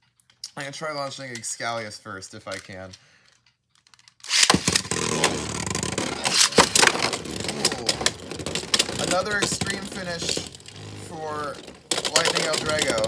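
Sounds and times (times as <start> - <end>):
spinning tops clacking together: 4.2 - 13.0
spinning tops launching: 4.2 - 13.0
spinning tops whirring: 4.2 - 13.0.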